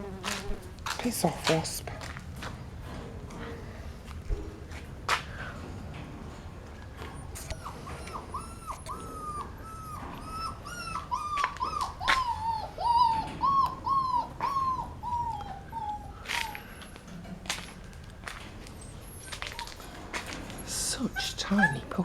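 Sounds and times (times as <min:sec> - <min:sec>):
puppy whining and yelping: 0:07.0 - 0:17.1, 0:18.8 - 0:22.0.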